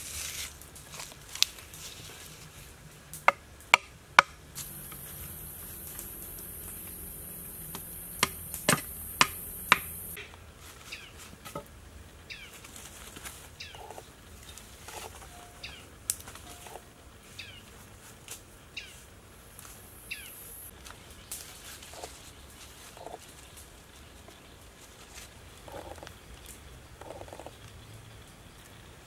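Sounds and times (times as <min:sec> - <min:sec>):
steady high hiss: 0:04.4 - 0:21.6
bird chirping: 0:04.6 - 0:10.2, 0:12.2 - 0:12.6, 0:13.5 - 0:17.8, 0:18.6 - 0:20.7
sharp knocks: 0:07.6 - 0:10.3
sticks clicking: 0:07.6 - 0:10.3.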